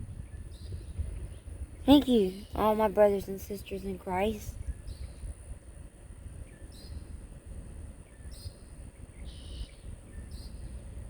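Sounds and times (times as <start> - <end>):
low wind rumble: 0.0 - 11.0
birds chirping: 0.2 - 5.2.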